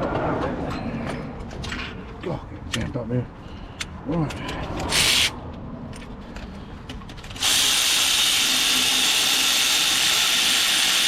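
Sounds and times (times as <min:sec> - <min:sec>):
cordless drill running: 0:07.4 - 0:11.0.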